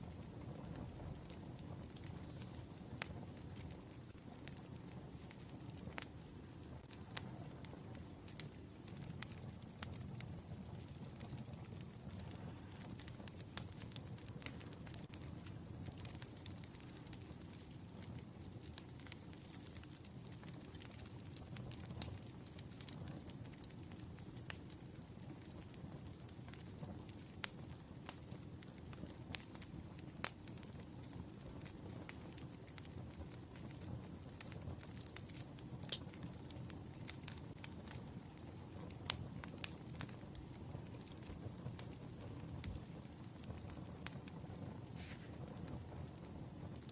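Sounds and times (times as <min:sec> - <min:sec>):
firewood crackling and popping: 0:00.0 - 0:46.9
low fire noise: 0:00.0 - 0:46.9.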